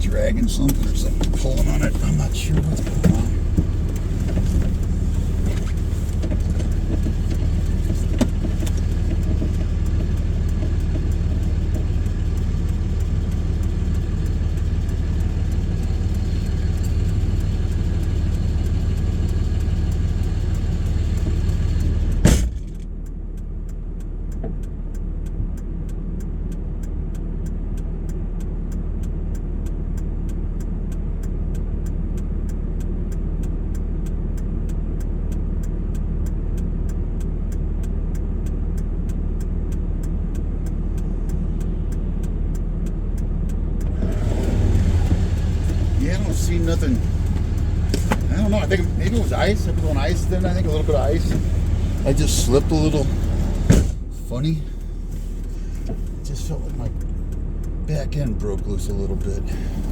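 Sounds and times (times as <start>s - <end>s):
car engine and road noise: 0.0s - 59.9s
fast faint ticking: 0.0s - 59.9s
loud clunk: 22.2s - 22.8s, 53.1s - 54.2s.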